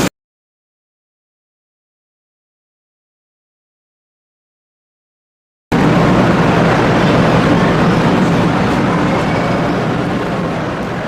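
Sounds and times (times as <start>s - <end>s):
high-speed train rushing: 5.7s - 11.0s.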